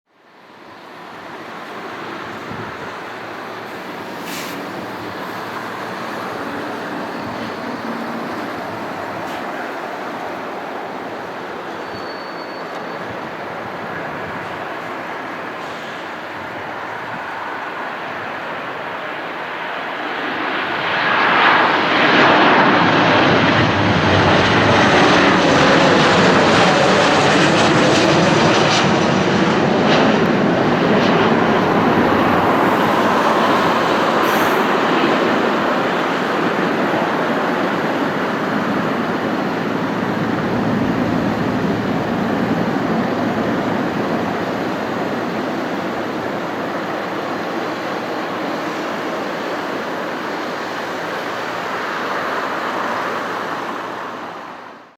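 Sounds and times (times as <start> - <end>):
jet airliner passing overhead: 0.3 - 54.9.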